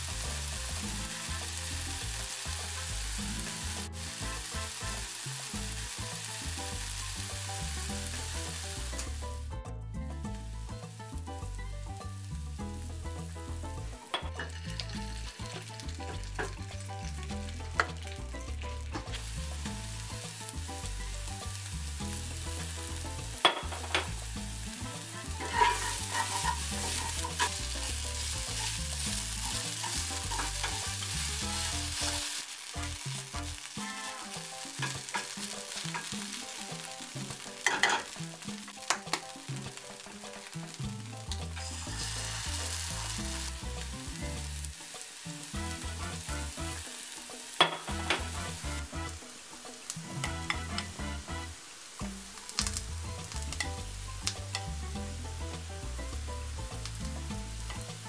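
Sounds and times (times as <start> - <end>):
food sizzling in a pan: 0.0 - 9.6, 10.2 - 58.0
spatula stirring in a pan: 19.0 - 53.7.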